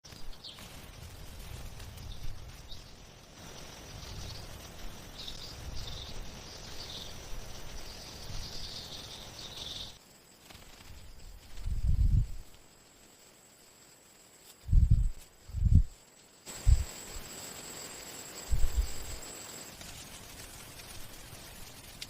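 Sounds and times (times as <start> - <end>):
wind on microphone: 11.2 - 12.5, 14.6 - 16.9, 18.5 - 19.2.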